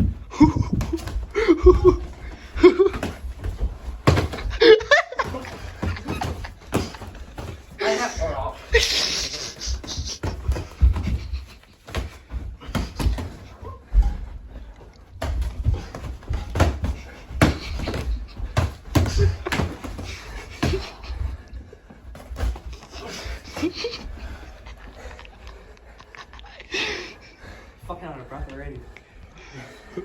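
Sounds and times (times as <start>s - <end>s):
punches thudding: 0.0s - 14.2s, 15.1s - 24.7s
scuffling: 0.0s - 26.4s
heavy breathing: 0.0s - 30.0s.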